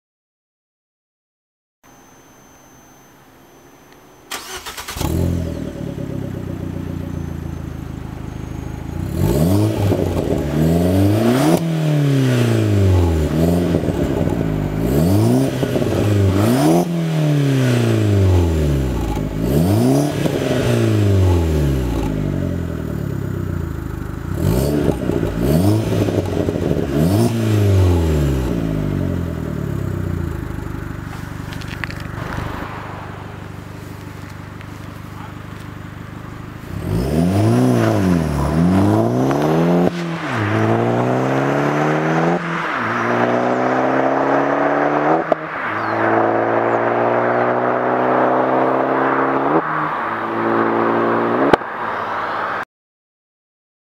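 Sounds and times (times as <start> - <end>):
car engine starting and revving: 4.3 - 52.6.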